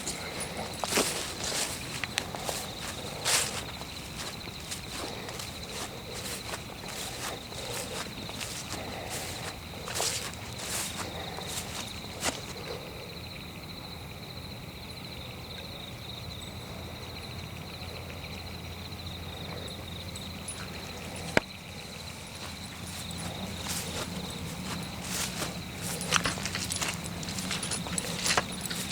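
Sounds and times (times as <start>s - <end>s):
footsteps on forest floor: 0.0s - 12.8s, 21.3s - 28.9s
crickets trilling: 0.0s - 28.9s.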